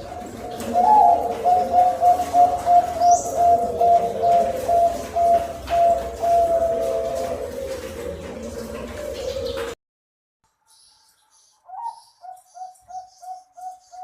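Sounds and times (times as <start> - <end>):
dove cooing: 0.0 - 9.8.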